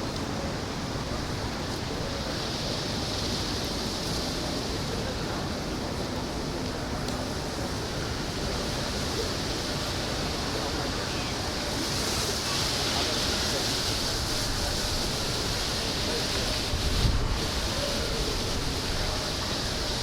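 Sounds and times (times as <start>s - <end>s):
wind buffeting microphone: 13.3s - 20.0s.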